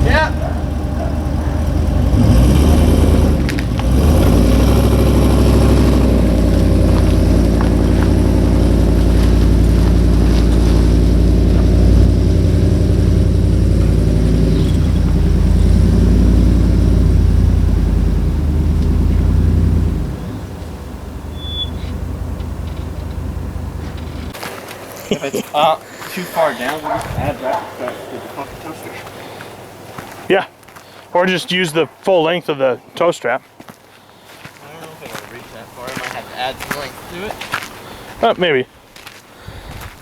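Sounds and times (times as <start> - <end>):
vehicle engine running: 0.0 - 24.6.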